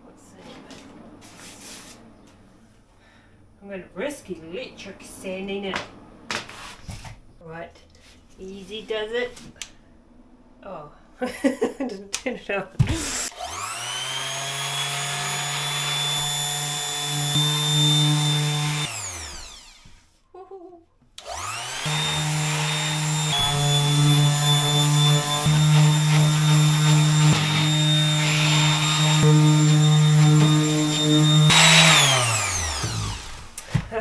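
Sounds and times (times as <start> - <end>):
electric sander sanding wood: 12.8 - 20.0, 21.2 - 34.0.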